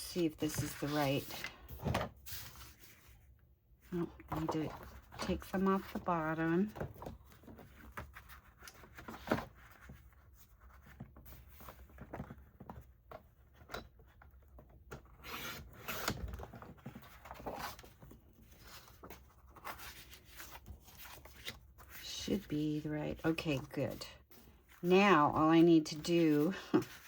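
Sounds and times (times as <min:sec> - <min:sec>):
paper rustling: 0:15.4 - 0:27.0.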